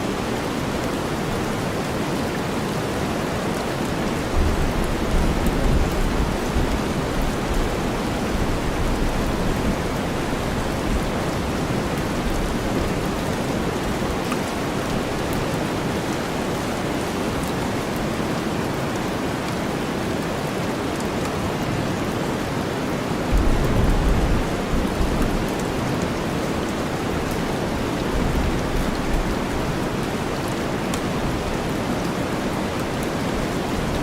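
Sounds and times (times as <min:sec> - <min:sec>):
steady rainfall: 0:00.0 - 0:34.0.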